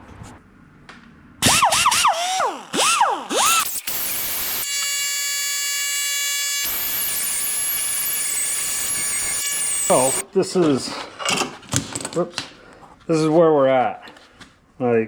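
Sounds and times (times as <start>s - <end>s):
die grinder whining: 1.4s - 10.2s
grinder grinding on metal: 1.4s - 10.2s.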